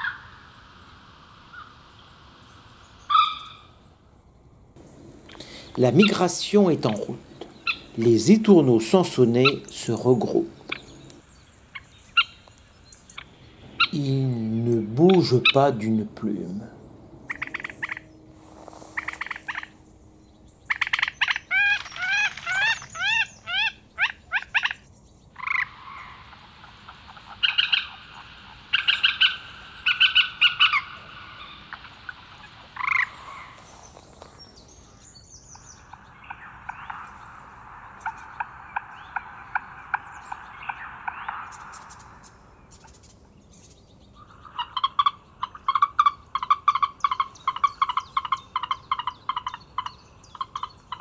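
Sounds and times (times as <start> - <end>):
sharp repeated bird calls: 0.0 - 4.1, 4.8 - 51.0
birds chirping: 0.0 - 51.0
rattling bird trill: 17.2 - 24.8.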